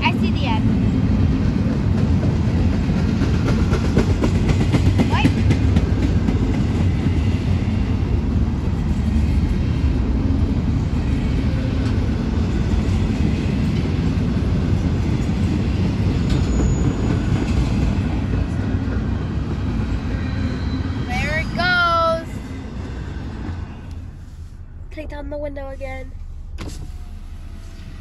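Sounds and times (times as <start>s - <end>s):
freight train wheels rumbling: 0.0s - 28.0s.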